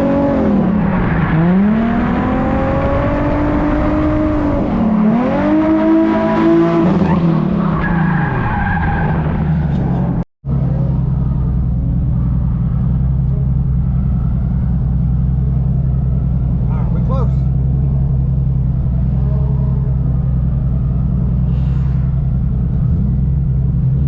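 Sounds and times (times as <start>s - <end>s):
car engine revving: 0.0s - 24.0s
engine idling: 10.4s - 24.0s.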